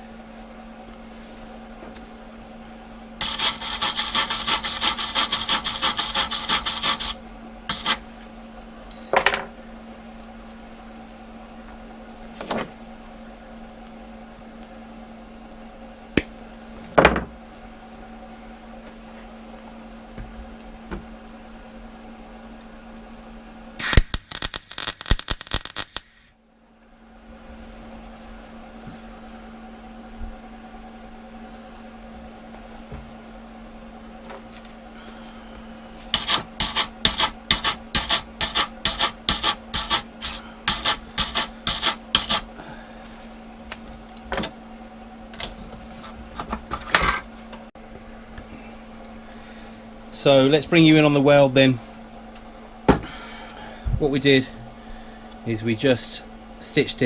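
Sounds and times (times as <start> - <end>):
steady low hum: 0.0 - 57.0
welder crackling: 23.8 - 26.3, 36.1 - 42.5.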